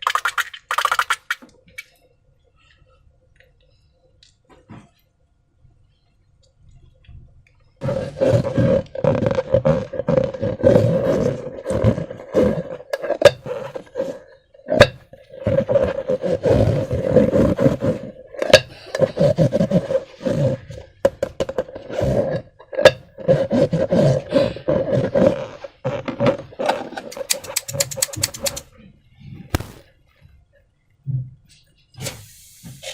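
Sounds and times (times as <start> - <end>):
squeaky rubber balloon groaning: 7.8 - 14.3
slime crackling and popping: 29.5 - 29.8.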